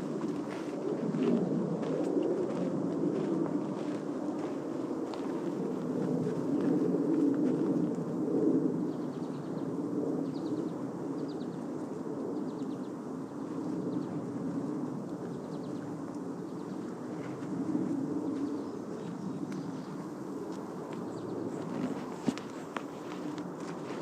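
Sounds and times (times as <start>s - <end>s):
songbirds trilling: 8.8s - 14.3s, 15.2s - 24.0s.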